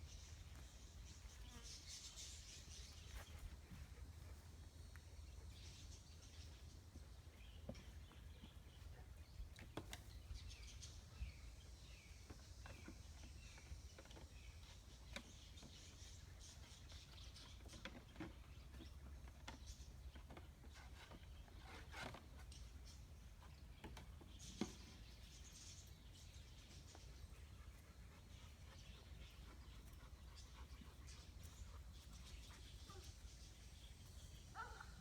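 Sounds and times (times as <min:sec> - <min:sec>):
faint bird chirps: 0:25.4 - 0:35.0.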